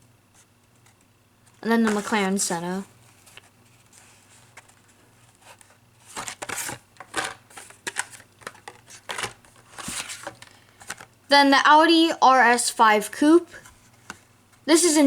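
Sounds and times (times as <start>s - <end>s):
plastic packaging crinkling: 0.8s - 11.1s.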